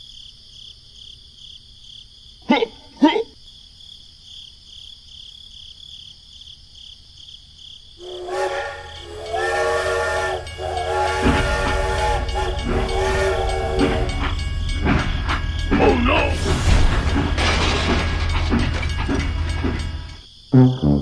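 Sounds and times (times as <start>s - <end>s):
pulsing high chirping: 8.0s - 20.2s
multi-tone horn blasts: 8.0s - 21.0s
low rumble: 8.8s - 20.2s.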